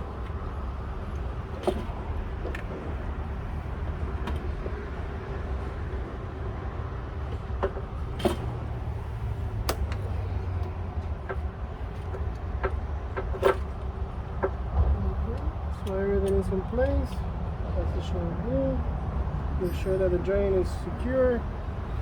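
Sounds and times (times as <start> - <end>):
steady low rumble: 0.0 - 22.0
clicks and knocks of tools: 9.7 - 17.2.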